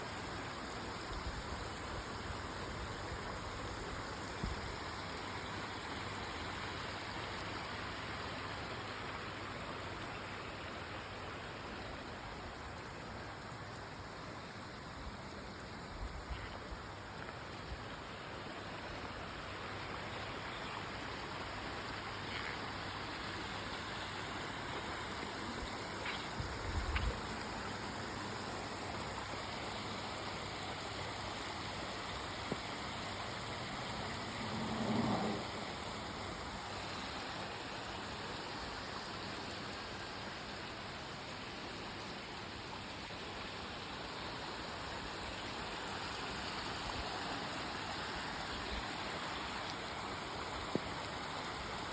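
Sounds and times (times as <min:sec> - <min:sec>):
running rainwater: 0:00.0 - 0:51.9
heavy rain: 0:10.1 - 0:51.9.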